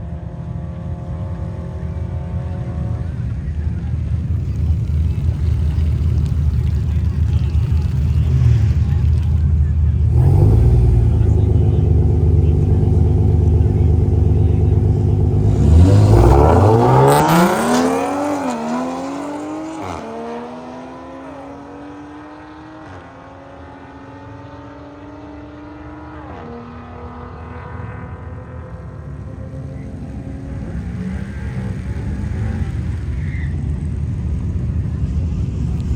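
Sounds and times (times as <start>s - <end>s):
car engine revving: 0.4s - 33.2s
gear shifts: 1.2s - 20.0s.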